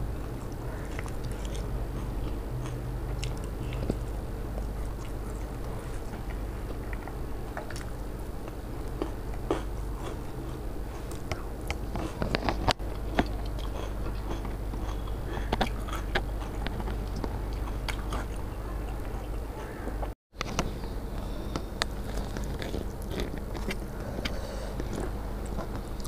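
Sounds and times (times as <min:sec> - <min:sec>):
chewing fried food: 0:00.0 - 0:26.0
low hum: 0:00.0 - 0:26.0.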